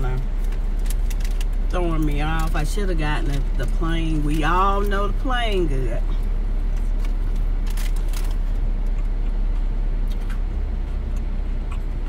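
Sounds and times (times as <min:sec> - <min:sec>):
vehicle engine idling: 0:00.0 - 0:12.0
sandwich wrapper crackling: 0:00.2 - 0:04.3, 0:06.8 - 0:09.0
chewing: 0:06.7 - 0:12.0.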